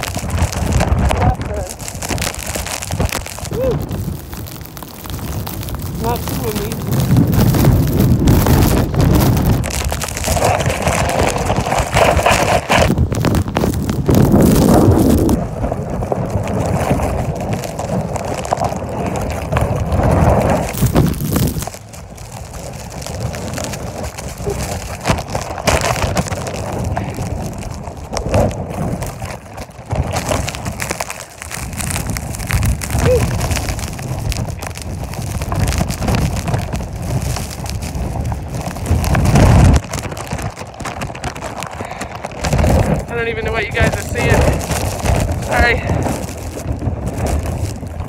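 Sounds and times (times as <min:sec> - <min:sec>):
gusty wind on microphone: 0:00.0 - 0:48.0.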